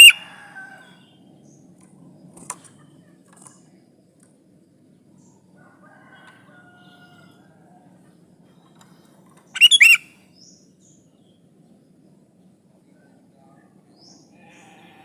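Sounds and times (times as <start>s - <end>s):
faint whistled bird notes: 8.4s - 10.6s
bird calling quick notes: 9.5s - 10.1s.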